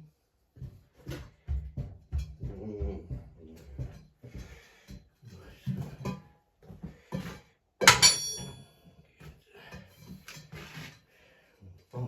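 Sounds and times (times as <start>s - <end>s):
metallic clank ringing: 7.8s - 8.7s.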